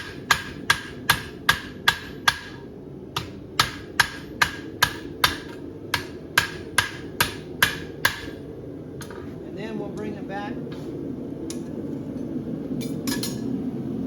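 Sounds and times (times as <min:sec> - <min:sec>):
hammer striking horseshoe on anvil: 0:00.0 - 0:08.4, 0:12.8 - 0:13.5.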